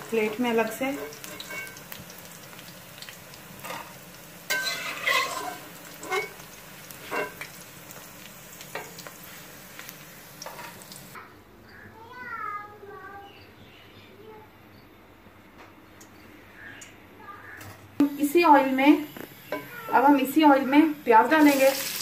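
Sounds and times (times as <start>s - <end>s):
okra sizzling in hot oil: 0.0s - 11.2s, 18.0s - 22.0s
metal spoon scraping a pan: 0.9s - 1.8s, 3.6s - 6.4s, 7.0s - 7.4s.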